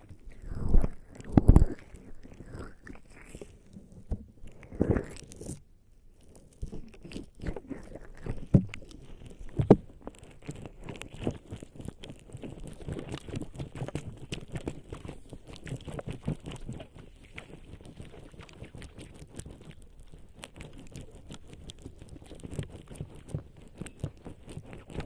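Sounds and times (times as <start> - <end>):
fingers rubbing wet skin: 6.2 - 25.0.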